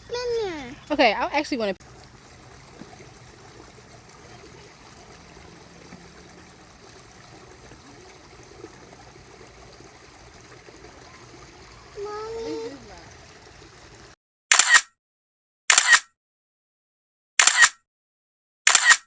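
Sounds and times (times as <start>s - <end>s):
creek water flowing over stones: 0.0s - 14.2s.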